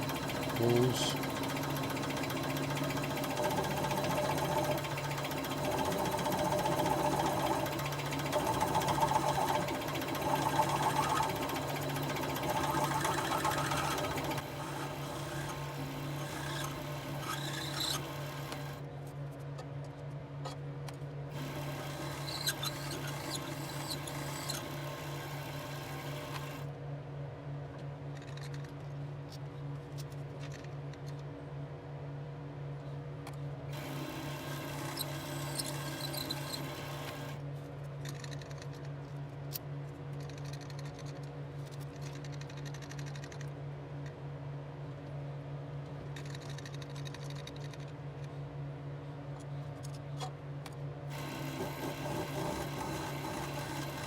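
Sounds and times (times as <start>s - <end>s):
bit cutting metal chatter: 0.0s - 15.5s
drill press motor humming: 0.0s - 18.8s, 21.3s - 26.7s, 33.7s - 37.4s, 51.1s - 54.0s.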